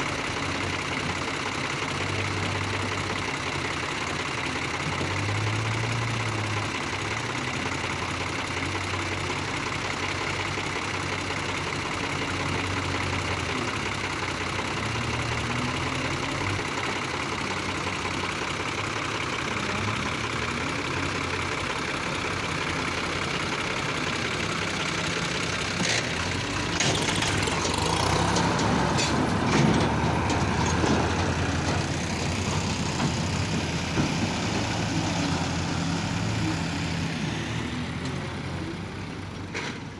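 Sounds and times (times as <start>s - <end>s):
heavy diesel engine running: 0.0s - 39.9s
clattering knocks and rattles: 25.4s - 34.5s.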